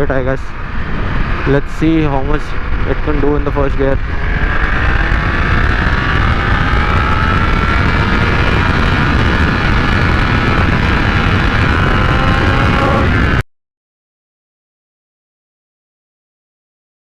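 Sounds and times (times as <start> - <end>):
motorcycle engine at full throttle: 0.0 - 13.4
wind rush on microphone: 0.0 - 13.4.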